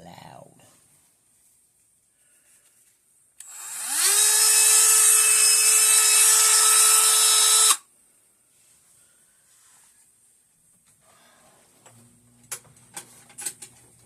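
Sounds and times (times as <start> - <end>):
rotary tool whining: 3.4 - 7.8.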